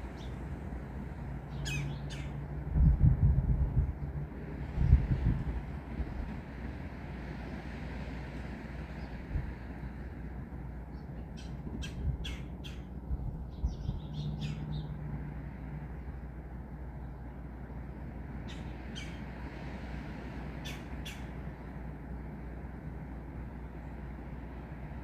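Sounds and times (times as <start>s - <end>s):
wind and rain: 0.0s - 10.9s, 19.2s - 25.0s
bird squawking: 1.5s - 2.4s, 11.4s - 12.9s, 14.2s - 14.7s, 18.5s - 19.2s, 20.6s - 21.3s.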